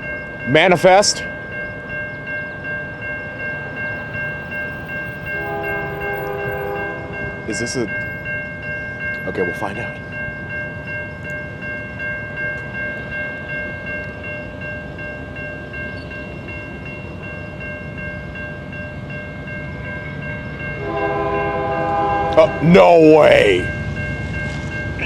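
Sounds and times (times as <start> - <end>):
freight train rumble: 0.0 - 25.0
high ringing tone: 0.0 - 25.0
locomotive air horn: 5.4 - 7.3, 20.8 - 22.7.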